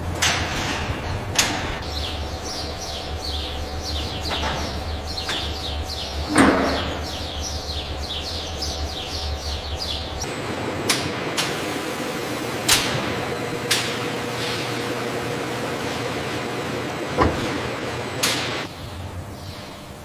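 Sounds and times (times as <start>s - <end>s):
small birds chirping: 1.8s - 10.3s, 18.6s - 19.9s.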